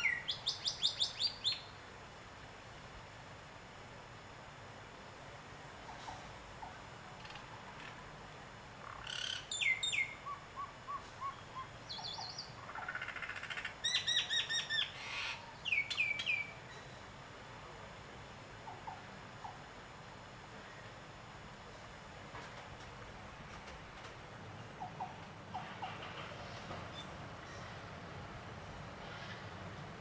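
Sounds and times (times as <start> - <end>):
faint steady background noise: 0.0 - 30.0
birds calling: 8.8 - 16.9, 23.2 - 26.2.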